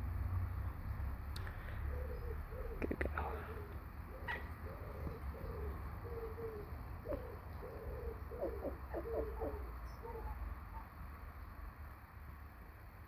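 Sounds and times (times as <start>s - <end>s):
bird soft hooting calls: 1.4s - 10.9s.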